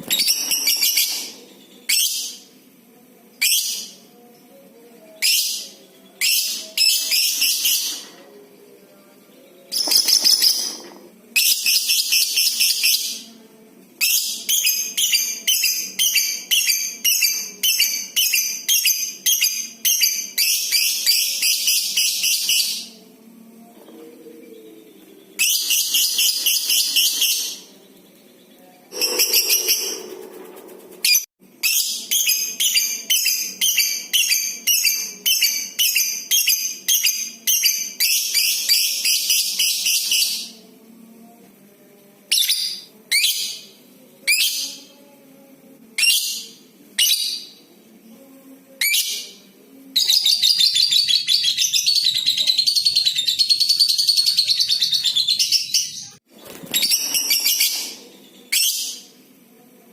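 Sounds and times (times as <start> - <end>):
lovebird chattering and chirping: 28.9 - 31.3.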